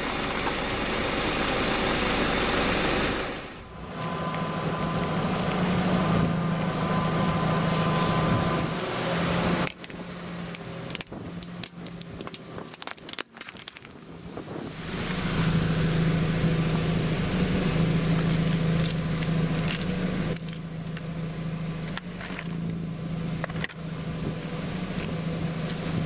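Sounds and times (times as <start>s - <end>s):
motor hum: 0.0s - 13.2s, 14.1s - 26.0s
crunching snaps of crushing: 9.6s - 14.0s, 18.2s - 21.1s, 21.9s - 22.8s, 23.4s - 23.8s.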